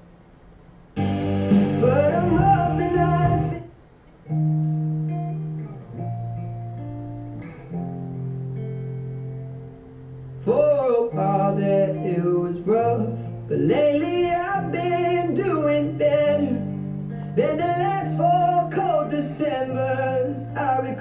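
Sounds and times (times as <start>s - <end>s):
acoustic guitar: 1.0s - 3.7s, 4.5s - 21.0s
person singing: 1.0s - 3.7s, 10.5s - 21.0s.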